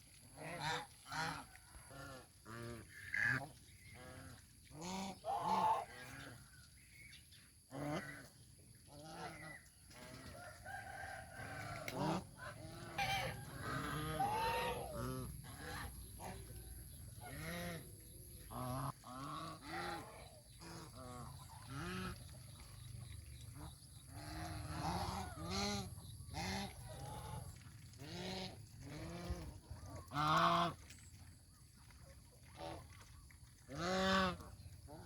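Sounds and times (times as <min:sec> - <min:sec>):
geese honking: 0:10.7 - 0:16.4.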